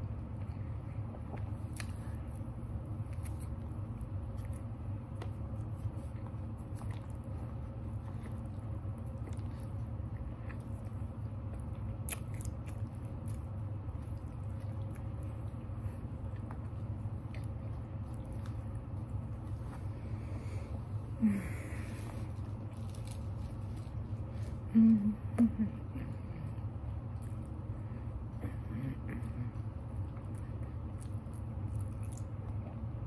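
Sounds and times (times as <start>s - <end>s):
person chewing food: 0.0s - 24.7s, 26.4s - 28.4s, 29.2s - 33.0s
steady low hum: 0.0s - 33.0s.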